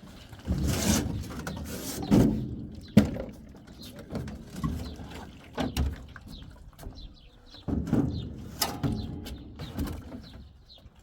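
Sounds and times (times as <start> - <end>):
small birds chirping: 5.7 - 11.0.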